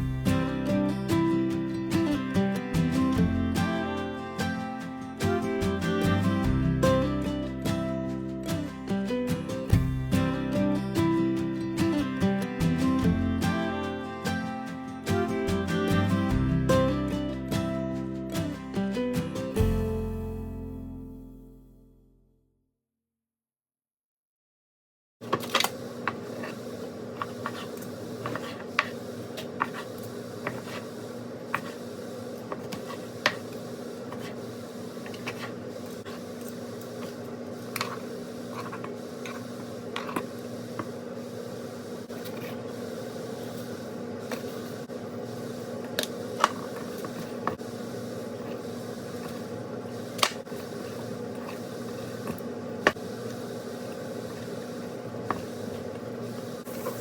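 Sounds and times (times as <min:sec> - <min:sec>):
steady hum: 0:25.8 - 0:57.0.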